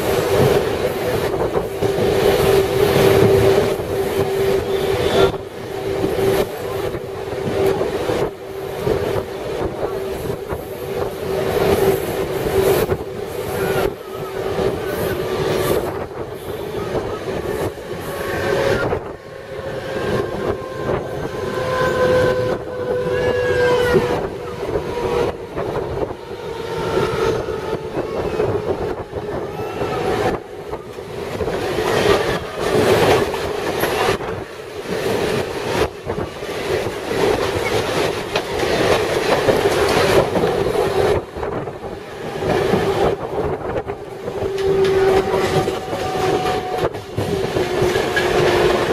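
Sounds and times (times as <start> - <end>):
passing train: 0.0 - 48.9
train rumbling on rails: 0.0 - 48.9
wheels clacking over rail joints: 30.0 - 48.9.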